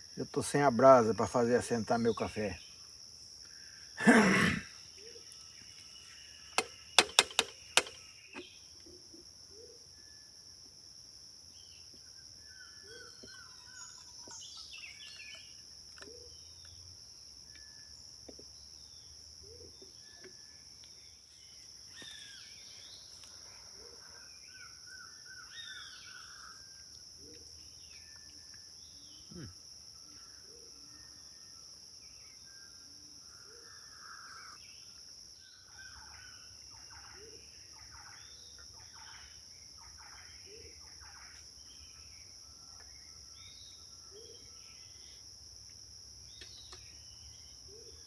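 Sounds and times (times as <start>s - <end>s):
sharp knocks: 6.6s - 8.0s
bird calls and chirps: 11.6s - 16.9s, 18.5s - 29.4s, 46.3s - 48.0s.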